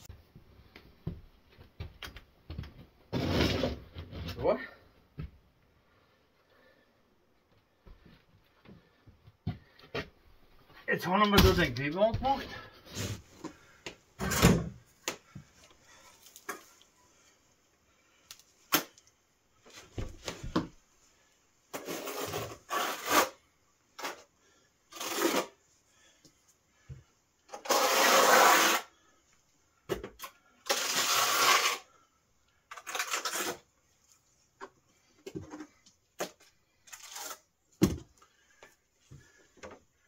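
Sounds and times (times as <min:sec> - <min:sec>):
trowel scraping: 0:21.7 - 0:23.4, 0:24.0 - 0:24.3, 0:24.9 - 0:25.6, 0:27.5 - 0:28.9, 0:30.6 - 0:31.9, 0:32.7 - 0:33.8, 0:36.9 - 0:37.5.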